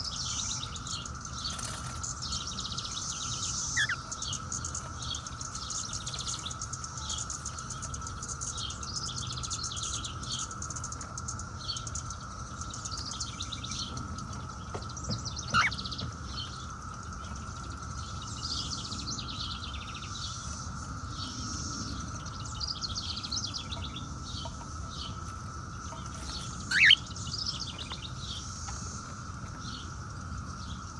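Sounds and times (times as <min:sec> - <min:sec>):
cicadas droning: 0:00.0 - 0:30.9
cockatiel rising calls: 0:03.7 - 0:04.0, 0:15.5 - 0:15.8, 0:26.7 - 0:27.0
short bird chirps: 0:03.8 - 0:04.0, 0:26.7 - 0:27.0.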